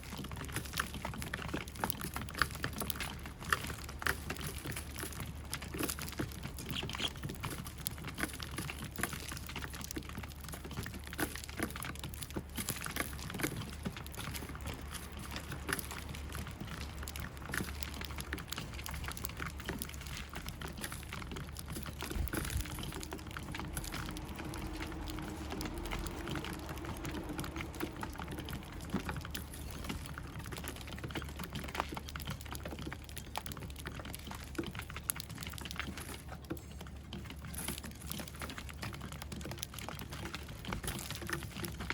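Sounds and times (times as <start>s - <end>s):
sparrows pecking taps and clicks: 6.6s - 7.4s.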